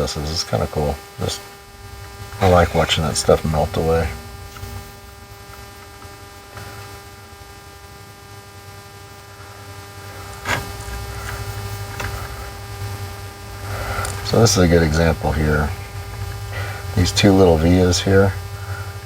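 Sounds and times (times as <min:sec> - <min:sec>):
electrical hum: 0:00.0 - 0:19.0
faint whine of held tones: 0:00.0 - 0:19.0
low rumble: 0:03.0 - 0:06.6.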